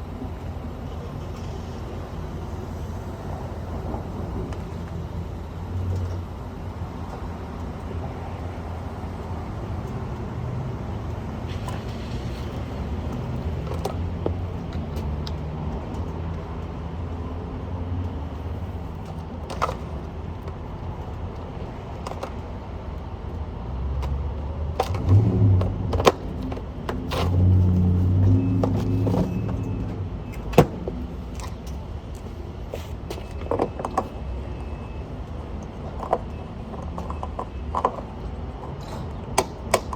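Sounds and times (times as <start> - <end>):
vehicle engine humming: 0.0 - 39.9
sharp clicks and knocks: 35.6 - 39.9.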